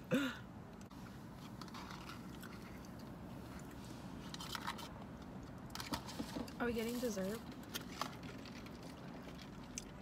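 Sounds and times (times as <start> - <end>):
low steady hum: 0.0 - 10.0
chewing and crunching food: 1.4 - 10.0.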